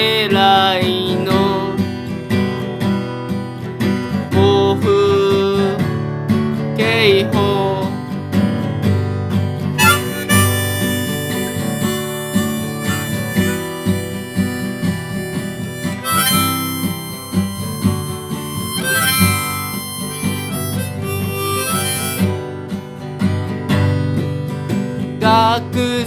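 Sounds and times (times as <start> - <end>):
strummed acoustic guitar: 0.0 - 26.0
harmonica melody: 9.8 - 23.2.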